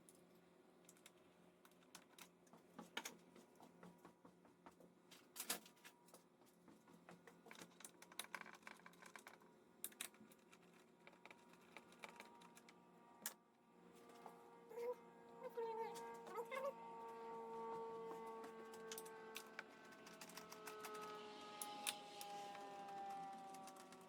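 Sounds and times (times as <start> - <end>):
small tools clicking and knocking: 7.2 - 13.4, 18.2 - 24.0.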